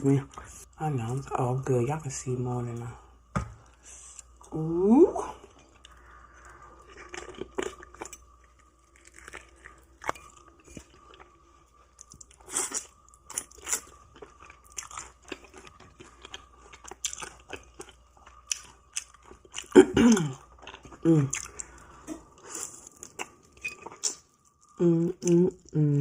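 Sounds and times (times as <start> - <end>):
crunchy fried chicken chewing: 5.8 - 24.8.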